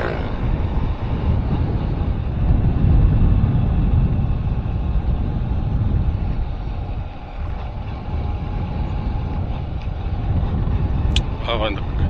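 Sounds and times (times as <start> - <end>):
road noise: 0.0 - 12.0
vehicle engine hum: 0.0 - 12.0
wind on microphone: 0.0 - 12.0.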